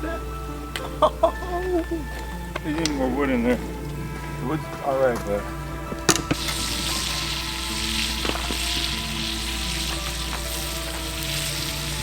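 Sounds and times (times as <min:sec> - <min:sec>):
burgers sizzling on a grill: 0:06.1 - 0:12.0.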